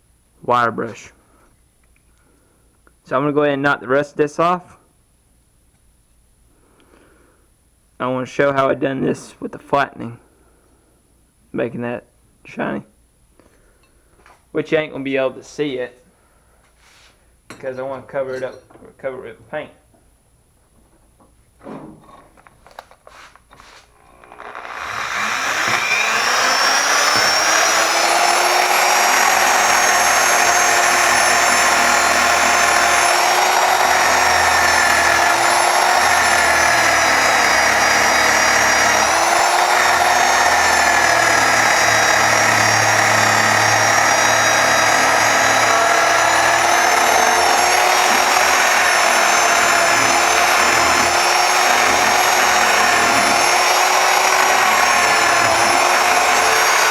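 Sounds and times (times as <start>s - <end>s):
power tool motor running: 23.8s - 56.9s.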